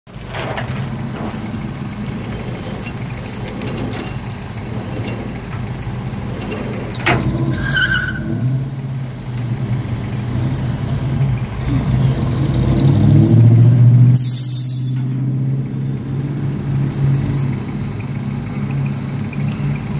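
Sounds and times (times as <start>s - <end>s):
car engine humming: 0.1s - 19.9s.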